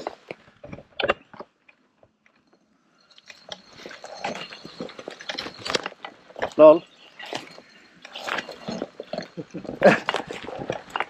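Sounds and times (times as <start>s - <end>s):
tyre crunching over leaves and twigs: 3.0s - 11.0s.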